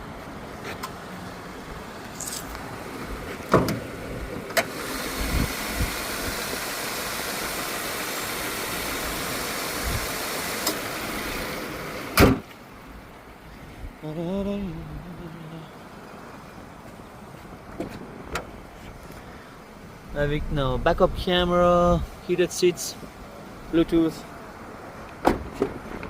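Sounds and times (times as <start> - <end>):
car door shutting: 3.3 - 4.8, 12.1 - 12.6, 25.2 - 26.0
steady rushing noise: 19.7 - 26.0.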